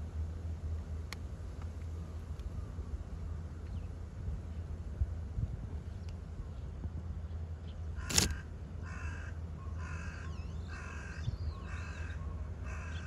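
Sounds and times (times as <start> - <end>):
sharp click: 8.0 - 8.4
bird harsh calls: 8.0 - 13.0.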